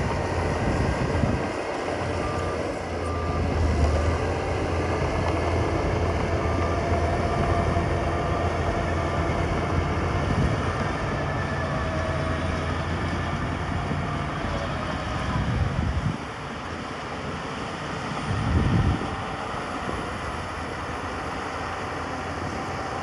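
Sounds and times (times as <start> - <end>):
truck reversing beeper: 0.0 - 16.0
heavy diesel machinery rumbling: 0.0 - 23.0.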